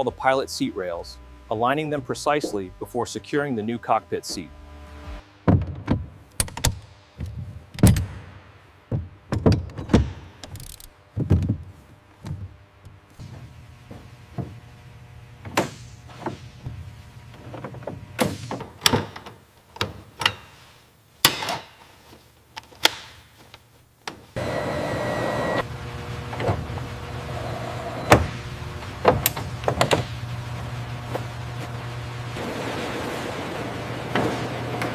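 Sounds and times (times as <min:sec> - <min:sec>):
low hum and hiss: 0:00.0 - 0:34.9
metal clunks and clicks: 0:17.4 - 0:20.6.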